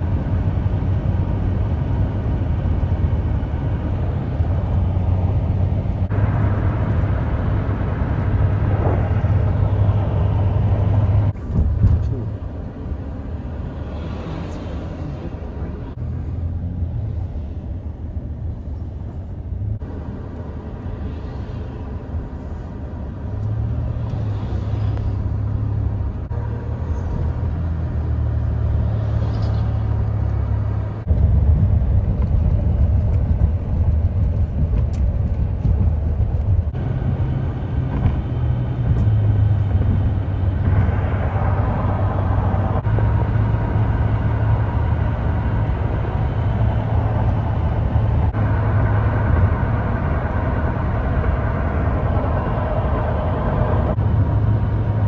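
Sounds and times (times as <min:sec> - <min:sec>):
highway traffic with heavy trucks: 0:00.0 - 0:55.0.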